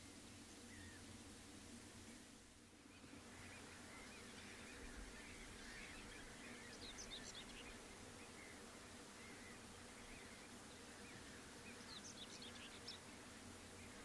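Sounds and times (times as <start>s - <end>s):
faint birdsong chirps: 0.0s - 1.3s, 2.0s - 14.0s.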